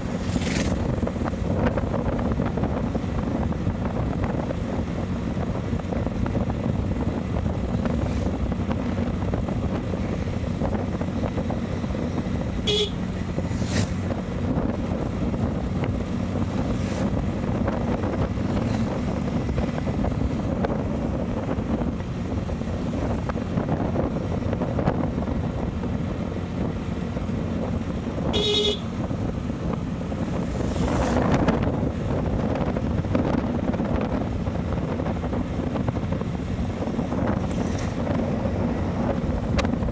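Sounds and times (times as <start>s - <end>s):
motorcycle running: 0.0s - 39.9s
wind over microphone: 0.0s - 39.9s
vehicle horn beeping: 12.6s - 13.2s, 28.2s - 29.0s.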